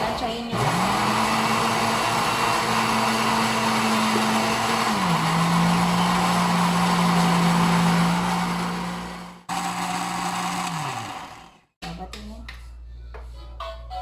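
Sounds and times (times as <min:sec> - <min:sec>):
blender motor running: 0:00.5 - 0:11.6.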